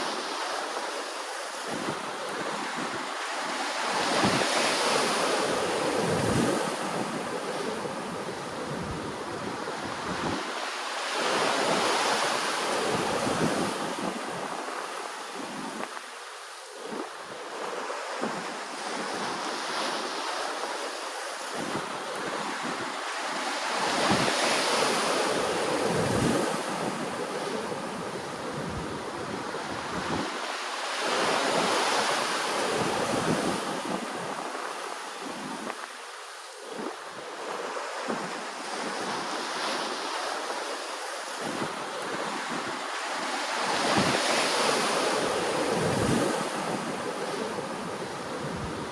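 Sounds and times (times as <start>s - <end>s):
ocean waves washing ashore: 0.0s - 48.9s
wind buffeting microphone: 3.9s - 16.0s, 23.8s - 30.5s, 41.3s - 48.9s.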